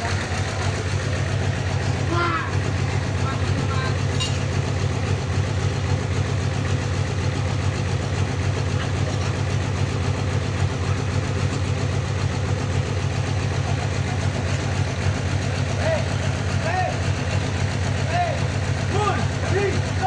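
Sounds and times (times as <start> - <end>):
sawmill engine running: 0.0 - 20.0.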